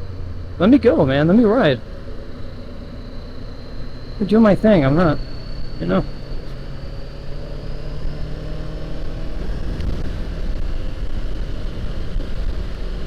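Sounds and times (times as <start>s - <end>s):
motorcycle engine running: 0.0s - 13.0s
wind noise: 3.4s - 13.0s.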